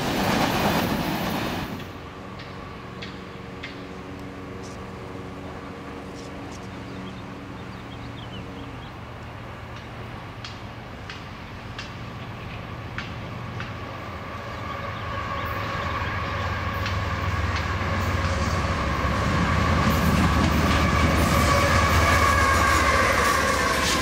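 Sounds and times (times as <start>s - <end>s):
wheels clicking over rail joints: 0.0s - 5.1s, 9.0s - 14.3s, 16.6s - 24.0s
diesel locomotive engines rumbling: 0.0s - 24.0s.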